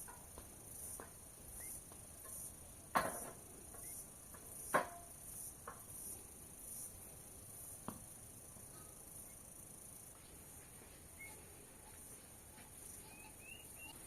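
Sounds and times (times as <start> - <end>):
insects chirping: 0.0 - 14.0
sharp knocks: 2.2 - 5.8.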